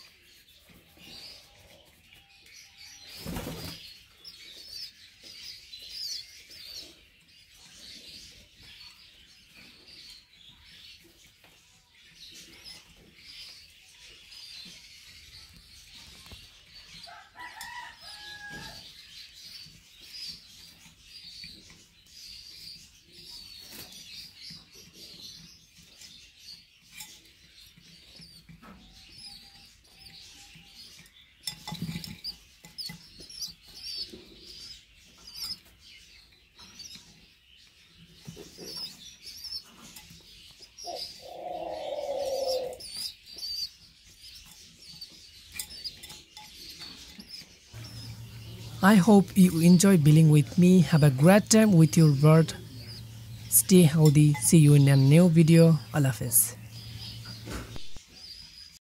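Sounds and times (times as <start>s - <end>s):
birds chirping: 0.0s - 58.8s
bird calls: 38.2s - 58.8s.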